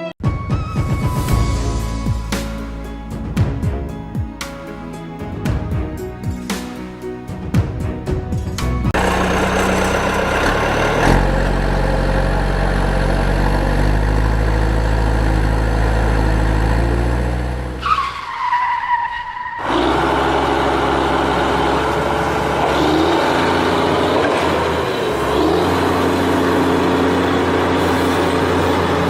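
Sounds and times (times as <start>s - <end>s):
vehicle engine running under load: 8.4s - 17.9s, 19.6s - 29.0s.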